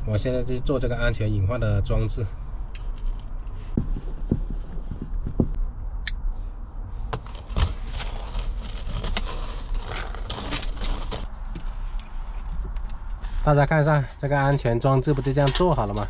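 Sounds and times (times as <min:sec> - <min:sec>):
low steady hum: 0:00.0 - 0:16.0
metal chain and hook rattling: 0:08.0 - 0:13.2.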